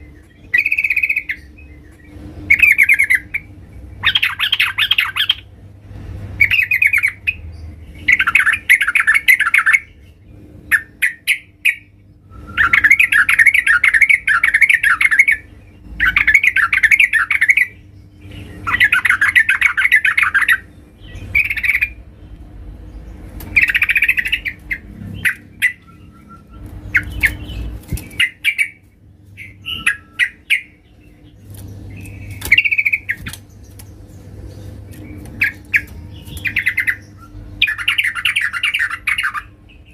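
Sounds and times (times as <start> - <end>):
faint steady hum: 0.0 - 39.9
bird rapid chattering: 0.3 - 5.5, 23.4 - 39.9.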